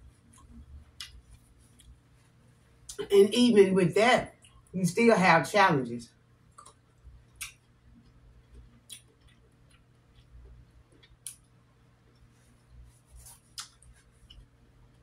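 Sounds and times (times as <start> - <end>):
low steady hum: 0.0 - 15.0
person chewing grapes: 6.5 - 15.0.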